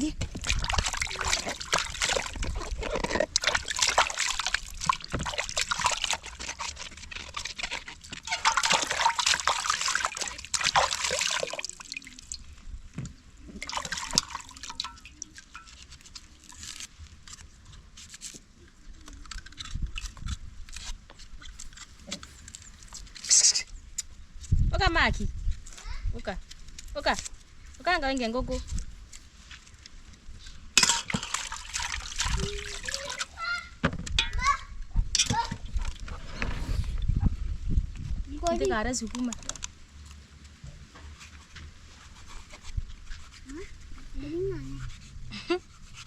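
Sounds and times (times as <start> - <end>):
water sloshing in basin: 0.0 - 16.9, 30.8 - 33.4.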